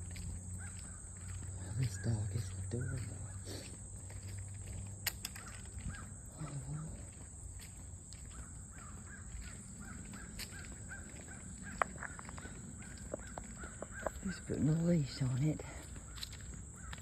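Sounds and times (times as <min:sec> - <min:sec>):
bird calling: 0:00.0 - 0:17.0.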